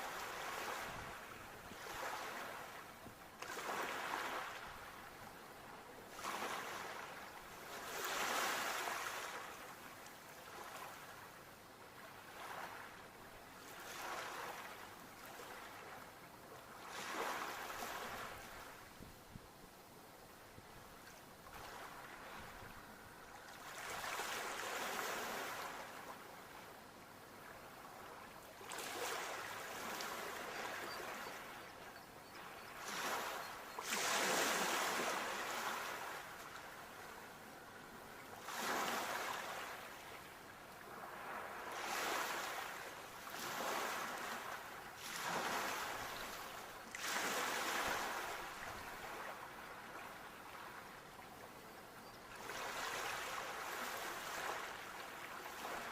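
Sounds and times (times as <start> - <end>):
soft wash of water: 0.0 - 55.9
sea waves breaking: 32.8 - 36.9, 38.4 - 40.1, 40.8 - 49.5.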